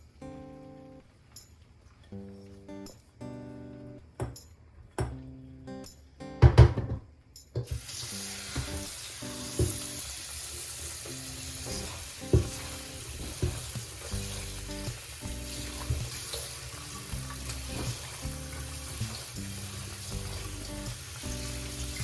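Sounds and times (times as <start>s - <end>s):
soft music: 0.0s - 6.9s, 7.7s - 22.0s
food sizzling in a pan: 7.7s - 22.0s.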